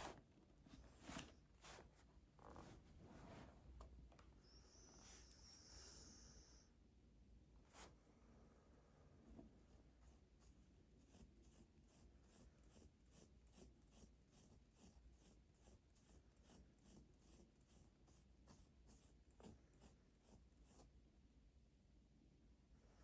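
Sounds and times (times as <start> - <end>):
pen scratching on paper: 8.6 - 20.9.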